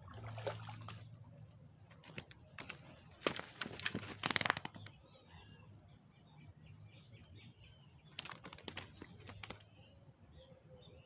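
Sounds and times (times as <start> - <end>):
rustles and clicks: 2.0 - 5.0
faint bird chirps: 4.4 - 11.0.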